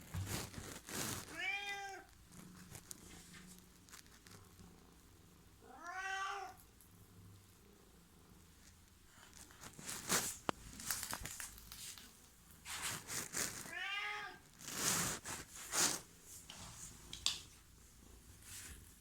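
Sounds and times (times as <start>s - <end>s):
rustling: 0.0s - 4.9s, 8.4s - 19.0s
cat meowing: 1.3s - 2.1s, 5.6s - 6.6s, 13.7s - 14.4s.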